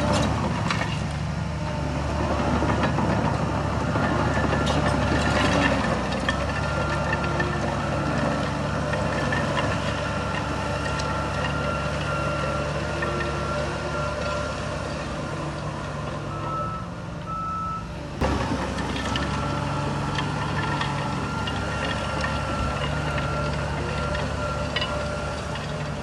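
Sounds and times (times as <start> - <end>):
diesel earthmoving machinery running: 0.0 - 26.0
reversing alarm beeping: 6.4 - 15.5, 16.2 - 18.0, 19.1 - 25.6.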